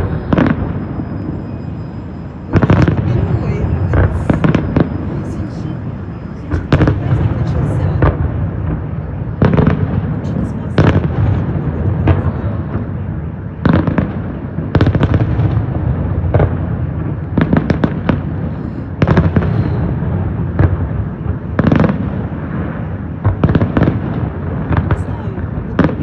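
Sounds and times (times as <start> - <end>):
low rumble: 0.0 - 14.2
fireworks bangs: 0.0 - 26.0.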